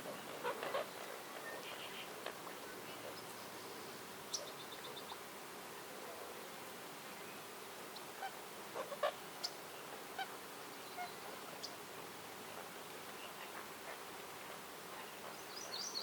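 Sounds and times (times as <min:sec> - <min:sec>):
background hiss: 0:00.0 - 0:16.0
birds calling: 0:14.9 - 0:16.0.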